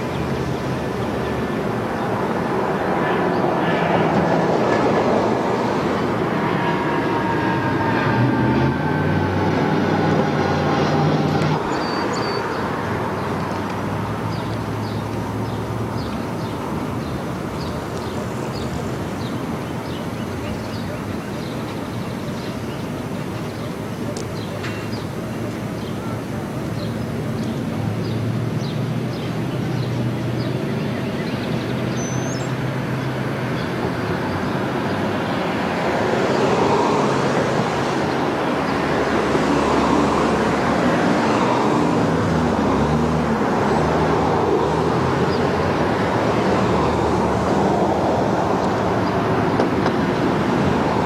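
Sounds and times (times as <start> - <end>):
train wheels rumbling: 0.0 - 18.8
train engine tones: 0.0 - 19.6.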